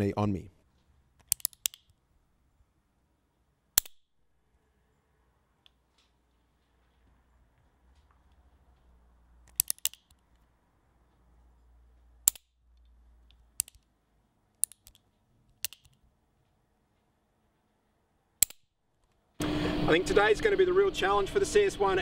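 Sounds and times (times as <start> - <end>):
firearm mechanism clicks: 1.2 - 2.0, 3.8 - 4.1, 9.4 - 10.4, 12.2 - 14.0, 14.6 - 16.1, 18.4 - 19.2.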